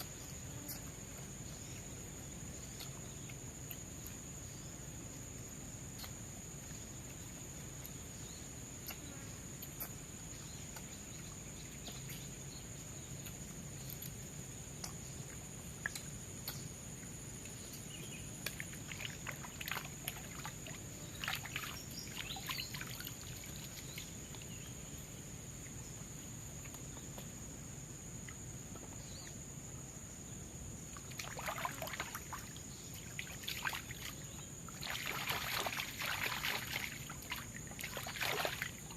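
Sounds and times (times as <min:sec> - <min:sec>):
low background noise: 0:00.0 - 0:38.9
water splashing and trickling: 0:17.4 - 0:24.7, 0:30.9 - 0:38.9.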